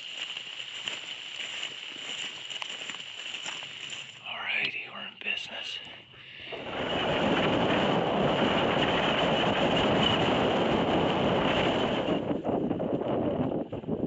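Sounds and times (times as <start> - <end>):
wind: 0.0 - 14.0
heavy rain pouring: 6.6 - 12.2.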